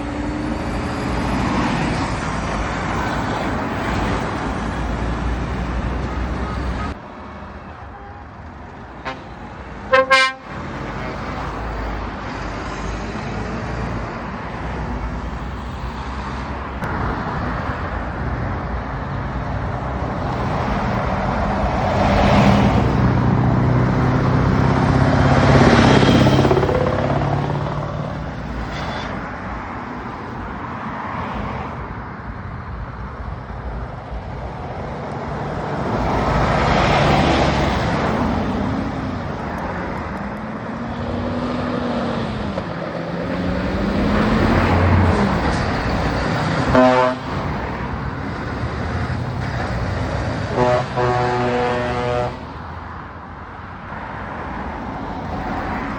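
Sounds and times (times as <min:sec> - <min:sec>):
heavy trucks driving past: 0:00.0 - 0:55.9
air horn: 0:09.0 - 0:09.3, 0:09.9 - 0:10.6, 0:28.6 - 0:29.2, 0:46.7 - 0:47.4, 0:50.5 - 0:52.4.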